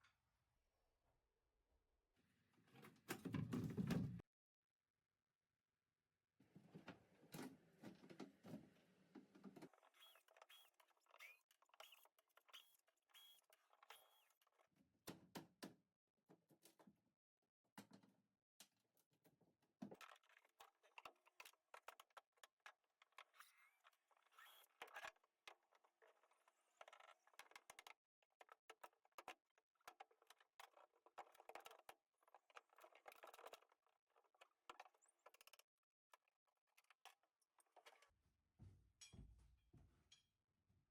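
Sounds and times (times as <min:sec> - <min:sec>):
clicks and rattles of hand work: 0:17.8 - 0:38.2.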